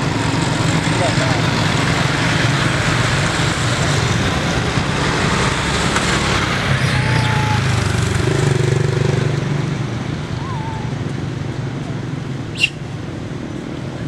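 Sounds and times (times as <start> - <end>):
faint short whistle: 12.5 - 12.8.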